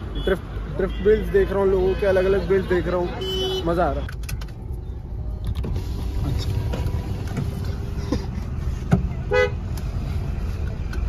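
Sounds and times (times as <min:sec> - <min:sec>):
car horn toot: 0:00.2 - 0:04.0, 0:09.3 - 0:09.6.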